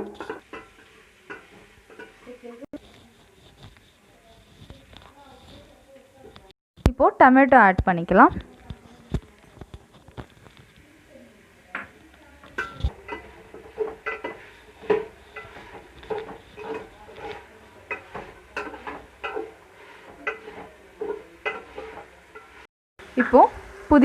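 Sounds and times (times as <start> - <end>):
metal spoon scraping a pan: 0.0 - 6.4, 11.8 - 22.7.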